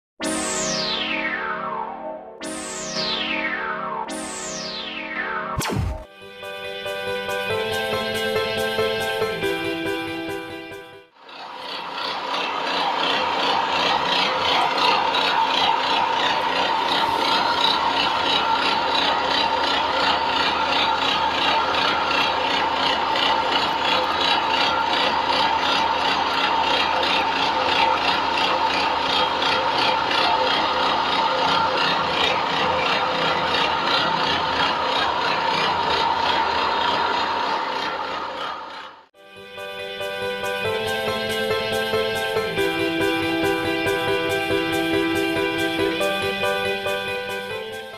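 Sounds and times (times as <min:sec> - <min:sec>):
pellet mill grinding: 0:11.2 - 0:39.0.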